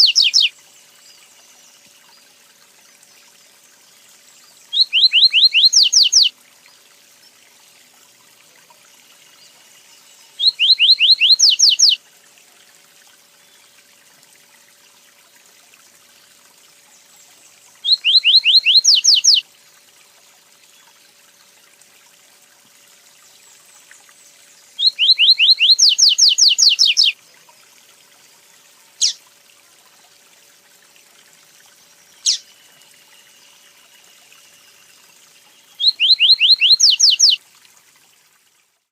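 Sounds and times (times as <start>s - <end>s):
songbird singing whistled phrase: 0.0s - 0.6s, 4.7s - 6.3s, 10.4s - 12.0s, 17.8s - 19.4s, 24.8s - 27.2s, 29.0s - 29.2s, 32.2s - 33.5s, 35.6s - 37.4s.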